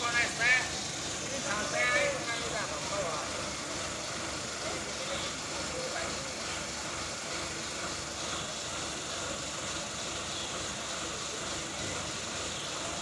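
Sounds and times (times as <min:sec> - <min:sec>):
vehicle engines running: 0:00.0 - 0:13.0.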